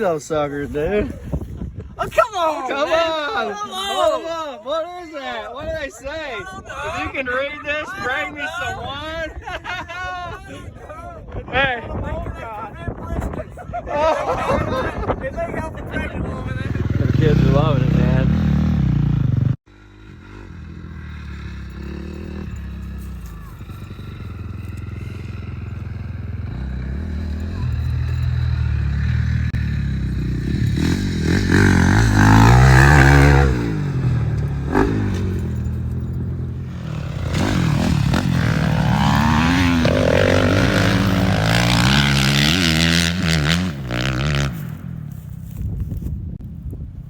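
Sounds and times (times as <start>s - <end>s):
dirt bikes revving: 16.2s - 45.6s.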